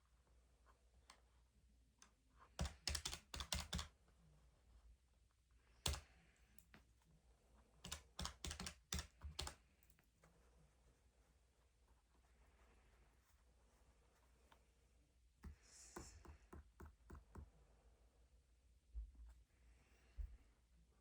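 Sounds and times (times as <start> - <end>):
keys being pressed: 2.6 - 3.9, 7.8 - 9.6.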